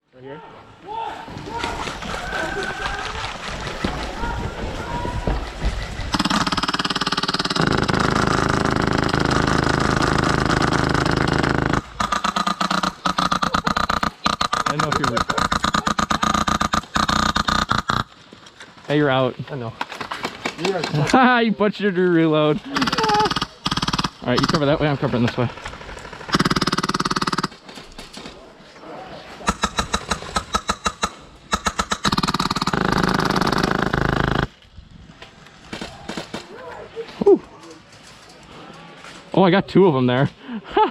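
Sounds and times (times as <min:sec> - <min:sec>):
airsoft machine gun firing: 0:05.5 - 0:18.2, 0:22.7 - 0:27.7, 0:29.5 - 0:34.6.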